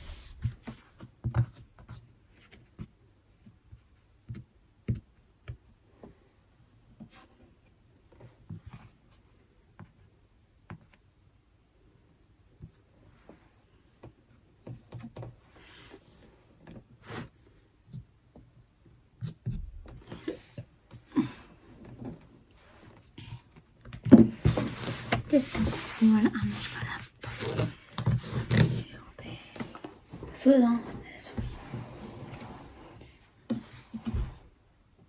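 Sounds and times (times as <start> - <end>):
hands working dough: 12.1 - 34.5.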